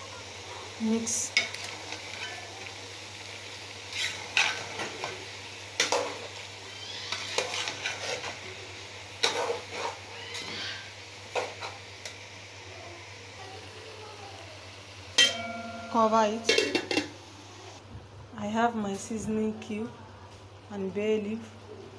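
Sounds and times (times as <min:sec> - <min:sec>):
food sizzling: 0:00.0 - 0:17.8
spoon scraping a pot: 0:03.9 - 0:04.9, 0:07.1 - 0:08.4, 0:09.2 - 0:10.6.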